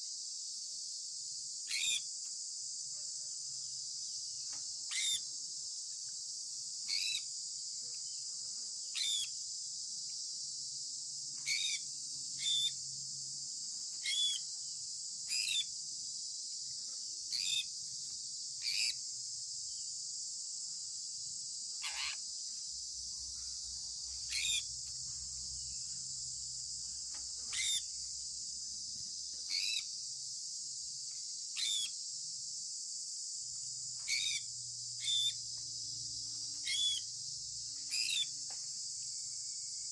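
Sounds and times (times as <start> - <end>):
steady high-pitched hiss: 0.0 - 39.9
parrot chirping: 4.9 - 5.2, 6.9 - 7.2, 9.0 - 9.3, 11.4 - 11.8, 12.4 - 12.8, 14.0 - 14.4, 17.3 - 17.7, 18.6 - 19.0, 21.8 - 22.2, 24.3 - 24.7, 27.5 - 27.9, 29.5 - 29.8, 34.1 - 34.4, 35.0 - 35.4, 36.6 - 37.1, 37.9 - 38.3.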